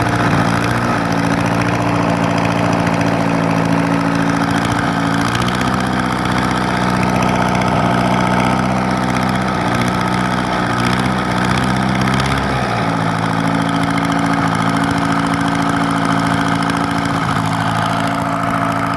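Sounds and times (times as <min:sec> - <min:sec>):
engine idling: 0:00.0 - 0:18.9.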